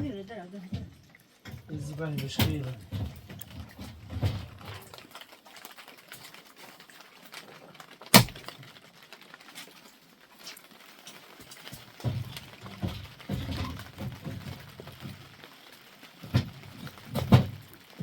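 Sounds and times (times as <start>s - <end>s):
sharp knock: 8.2s - 8.4s.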